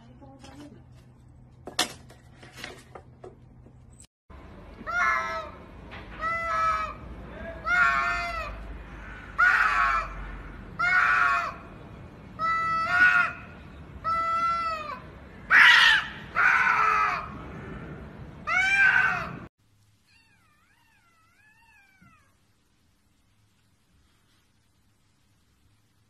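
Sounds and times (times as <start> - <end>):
cats yowling: 4.8 - 5.6, 6.2 - 11.6, 12.4 - 17.8, 18.4 - 19.5, 20.1 - 22.5.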